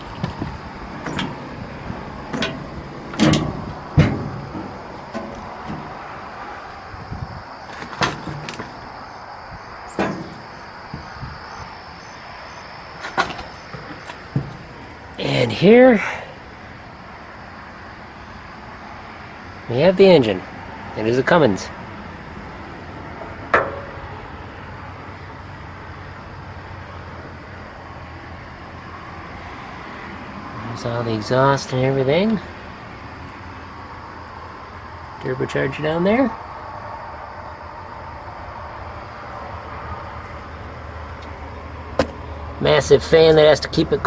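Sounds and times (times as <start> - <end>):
steady low rumble: 0.0 - 15.8
steady background hiss: 0.0 - 44.0
sharp knocks: 2.3 - 6.0, 9.9 - 11.3, 23.5 - 24.1, 42.0 - 42.2.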